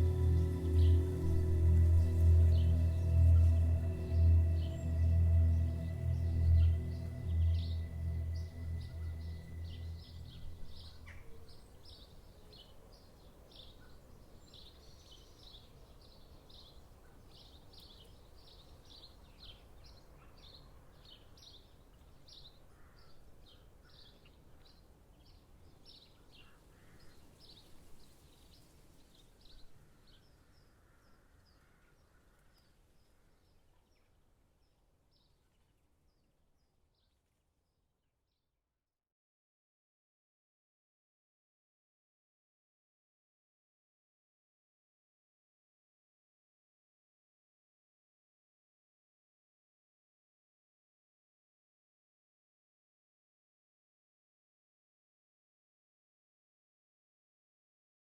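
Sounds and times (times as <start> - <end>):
soft ambient music: 0.0 - 12.0
soft forest background hiss: 0.0 - 37.9.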